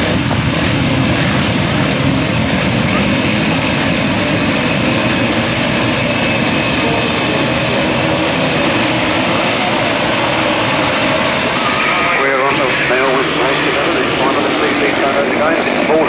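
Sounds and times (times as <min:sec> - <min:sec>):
racing motorcycle engines running: 0:00.0 - 0:16.0.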